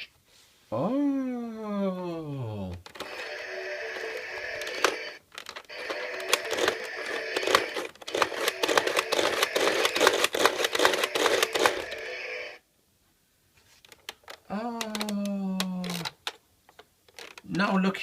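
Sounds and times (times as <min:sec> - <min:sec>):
toy clicks and clatter: 0:02.8 - 0:12.1, 0:13.9 - 0:17.6
toy electronic held tones: 0:03.0 - 0:12.6.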